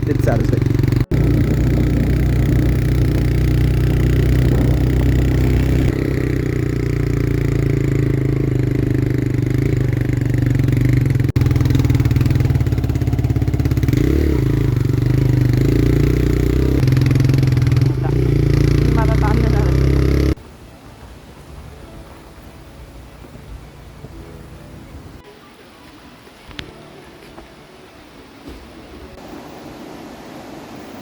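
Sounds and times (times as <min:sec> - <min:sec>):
motorcycle engine running: 0:00.0 - 0:20.4.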